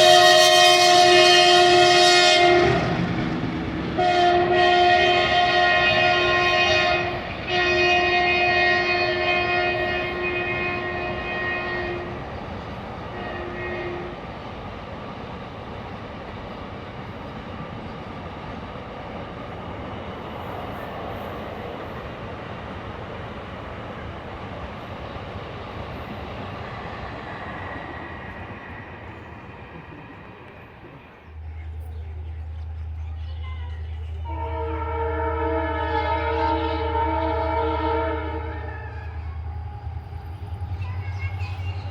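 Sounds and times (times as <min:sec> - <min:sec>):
locomotive air horn blasts: 0:00.0 - 0:03.2, 0:03.9 - 0:12.2, 0:13.1 - 0:14.2, 0:34.2 - 0:38.7
train wagons rumbling past: 0:00.0 - 0:41.9.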